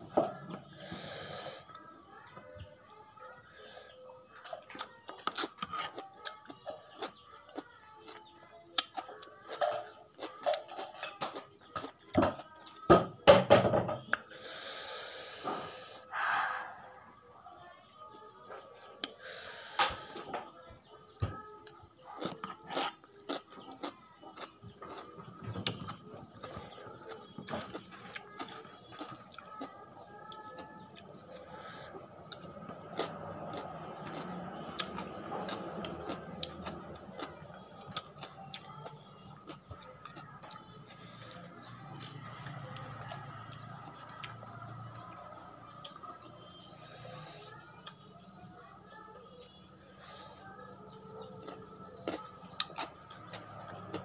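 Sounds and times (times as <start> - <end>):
crunching cucumber: 4.4 - 12.8, 21.4 - 31.6, 32.3 - 45.2, 50.9 - 54.0
hissing breath drawn in: 14.3 - 16.9.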